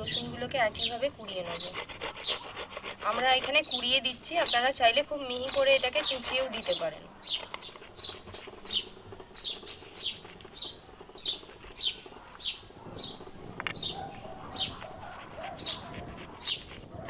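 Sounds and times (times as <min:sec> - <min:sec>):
bird chirping: 0:00.0 - 0:16.8
garlic grated on metal grater: 0:01.3 - 0:12.5.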